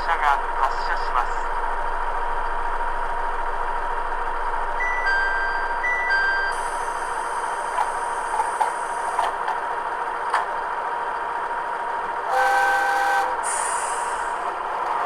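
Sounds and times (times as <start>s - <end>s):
diesel railcar hiss and hum: 0.0s - 15.0s
train horn blast: 12.3s - 14.1s
hiss of air: 13.4s - 14.4s.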